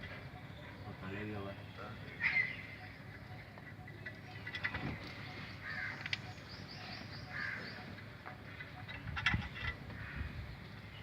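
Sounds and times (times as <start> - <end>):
crow cawing: 2.2 - 2.8, 5.6 - 6.3, 7.2 - 7.9, 9.9 - 10.4.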